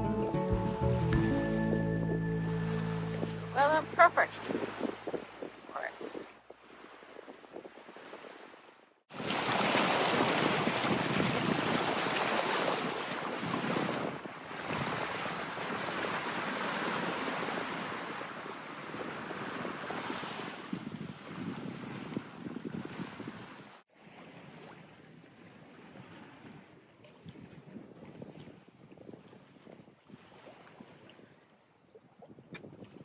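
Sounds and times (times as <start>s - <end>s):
water rushing: 1.1s - 6.1s, 9.1s - 18.7s
wind rushing: 2.6s - 8.2s.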